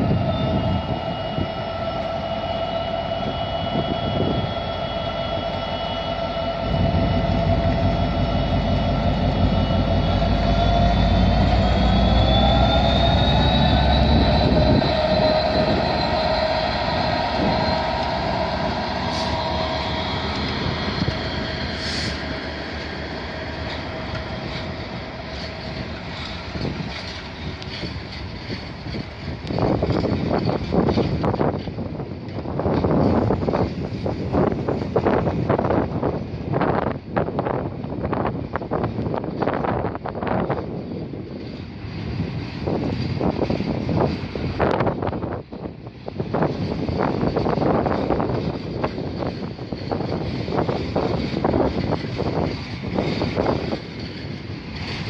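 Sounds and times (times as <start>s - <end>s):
mechanical whine: 0.0s - 31.7s
locomotive engine rumble: 0.0s - 55.0s.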